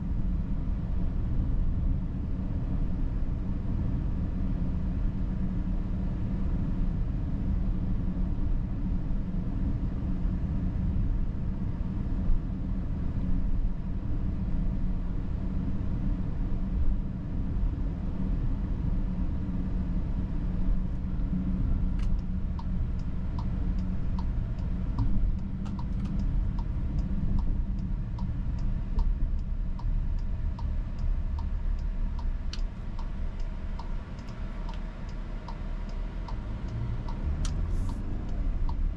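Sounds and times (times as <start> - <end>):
car cabin rumble: 19.1 - 38.9
turn signal ticking: 21.9 - 38.9.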